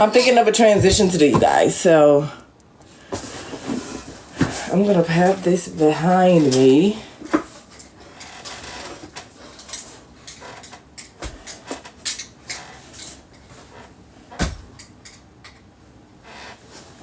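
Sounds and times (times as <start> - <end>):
loud thump: 0.8 - 1.6.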